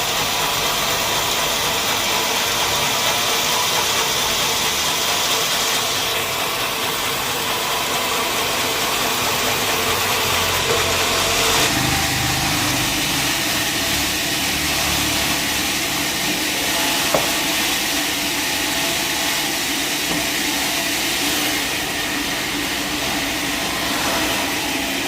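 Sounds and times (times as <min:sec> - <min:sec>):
sawmill machinery hissing: 0:00.0 - 0:25.0.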